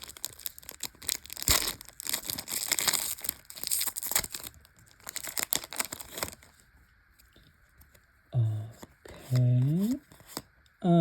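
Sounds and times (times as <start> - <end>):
foil pack tearing: 0.0 - 6.5
foil pack crinkling: 0.0 - 6.6.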